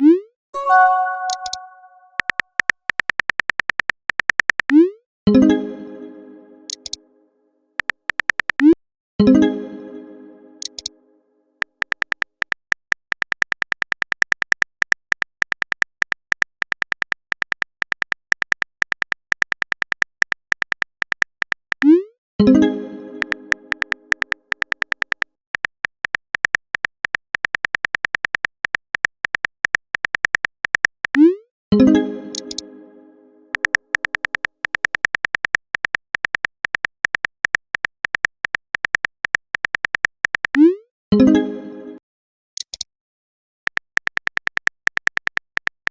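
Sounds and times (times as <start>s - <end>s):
music: 0.6s - 2.2s, 5.3s - 7.7s, 9.2s - 11.7s, 22.4s - 24.8s, 31.7s - 34.2s, 41.2s - 42.0s
keyboard typing clicks: 0.6s - 4.8s, 6.7s - 7.0s, 10.6s - 10.9s, 11.6s - 22.0s, 23.2s - 31.2s, 32.3s - 32.6s, 33.5s - 40.7s, 43.7s - 45.9s.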